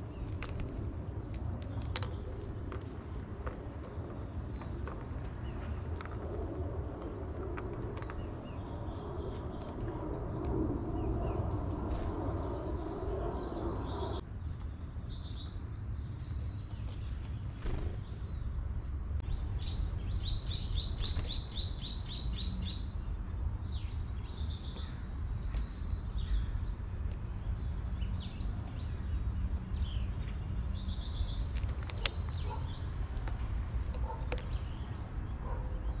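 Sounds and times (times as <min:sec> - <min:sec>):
bird trill: 0:00.0 - 0:00.6
songbirds chirping: 0:00.0 - 0:36.0.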